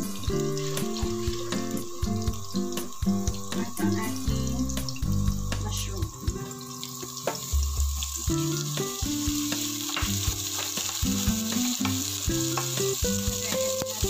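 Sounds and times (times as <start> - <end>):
mushrooms sizzling in hot oil: 0.0 - 14.0
soft background music: 0.0 - 14.0
wooden spatula scraping and tapping: 9.8 - 12.8.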